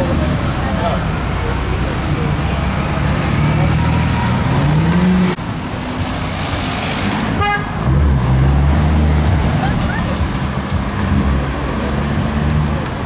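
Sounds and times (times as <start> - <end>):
car engine accelerating: 0.0 - 13.0
car horn toot: 7.4 - 7.8.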